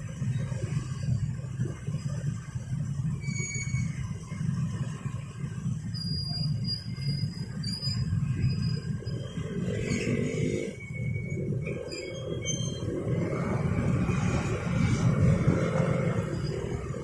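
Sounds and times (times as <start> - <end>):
train rumbling: 0.0 - 17.0
high-pitched wheel squeals: 3.0 - 4.2, 5.8 - 13.3.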